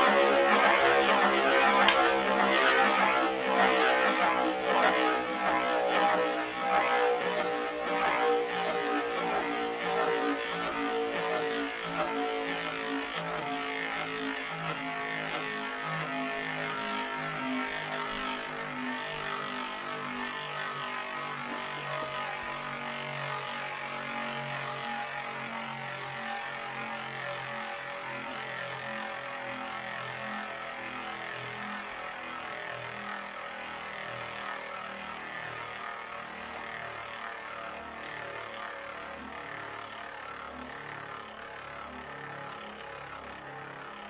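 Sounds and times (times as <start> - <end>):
spinning tops whirring: 0.1 - 4.5.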